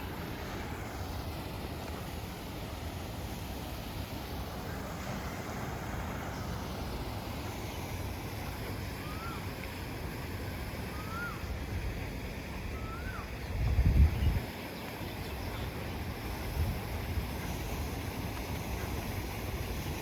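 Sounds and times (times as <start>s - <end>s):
bird whistle rising and falling: 9.0s - 9.5s, 10.9s - 11.4s, 12.7s - 13.3s
wind buffeting microphone: 11.6s - 14.5s.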